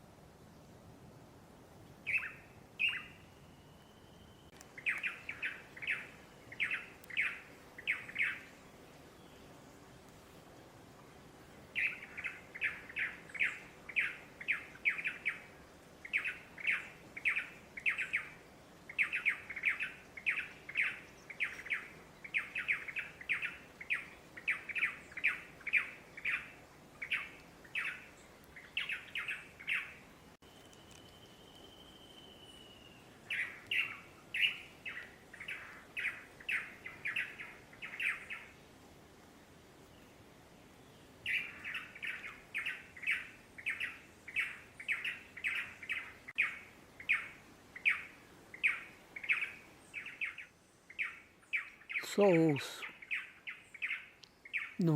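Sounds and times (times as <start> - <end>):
bird whistle: 30.4 - 34.6.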